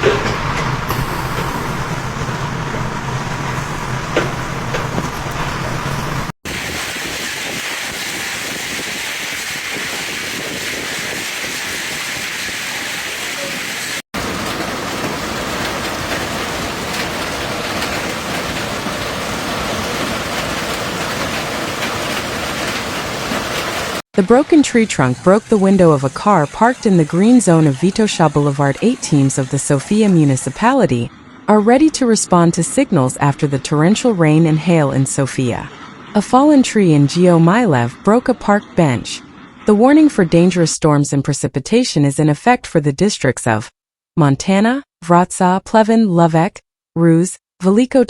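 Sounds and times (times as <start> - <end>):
low hum: 0.0 - 6.8
heavy storm downpour: 0.0 - 24.0.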